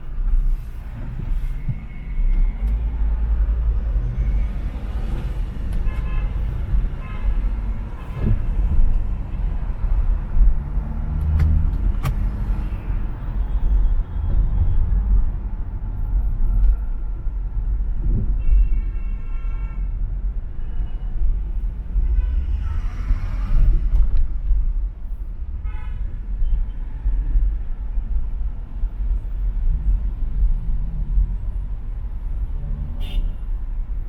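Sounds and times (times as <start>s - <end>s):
road traffic rumble: 0.0s - 19.0s, 19.7s - 34.0s
car horn honking: 33.0s - 33.4s.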